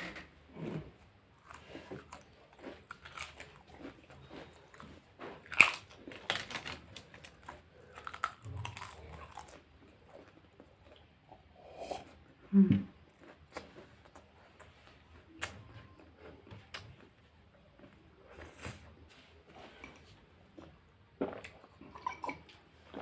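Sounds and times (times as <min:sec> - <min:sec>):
person chewing and biting food: 0:00.6 - 0:11.1, 0:13.0 - 0:18.9.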